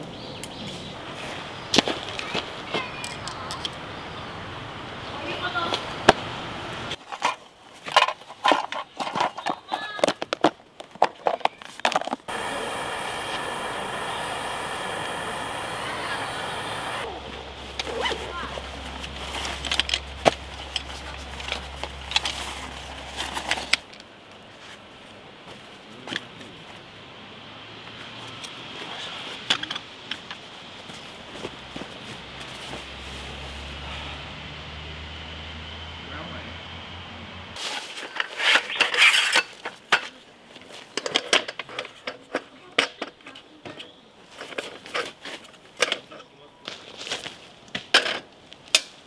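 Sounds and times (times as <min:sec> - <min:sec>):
outdoor ambience: 0:00.0 - 0:49.0
camping gear clicks and rustles: 0:06.9 - 0:15.5, 0:17.6 - 0:26.9, 0:27.9 - 0:33.8, 0:37.6 - 0:49.0.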